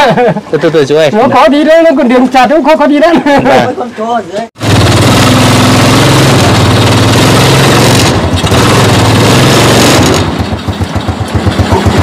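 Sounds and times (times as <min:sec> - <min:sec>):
motorbike engine running: 0:04.6 - 0:12.0.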